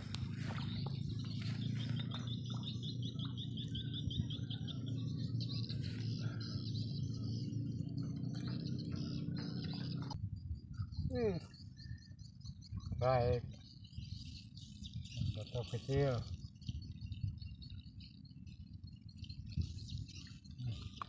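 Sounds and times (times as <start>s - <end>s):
steady low rumble: 0.0s - 15.6s
birds chirping: 0.0s - 21.0s
high bird trill: 0.0s - 21.0s.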